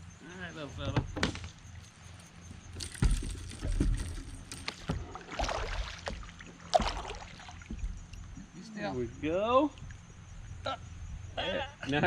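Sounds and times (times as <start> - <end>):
water sloshing around kayak: 1.0 - 8.7, 9.4 - 10.6
knocks on kayak hull: 4.8 - 8.0.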